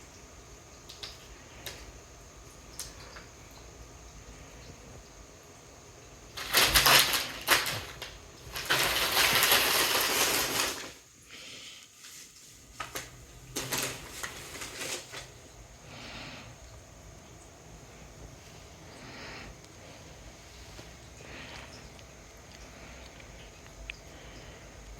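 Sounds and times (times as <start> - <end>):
packaging crinkling and rustling: 6.4 - 11.0, 12.0 - 15.4.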